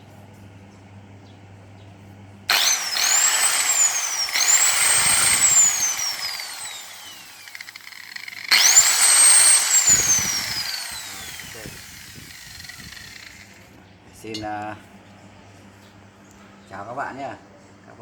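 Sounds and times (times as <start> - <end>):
electric cutter motor whining: 2.5 - 13.7.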